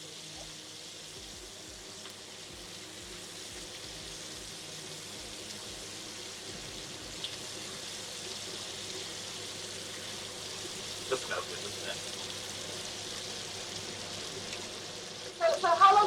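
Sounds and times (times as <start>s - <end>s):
chicken sizzling in a pan: 0.0s - 16.0s.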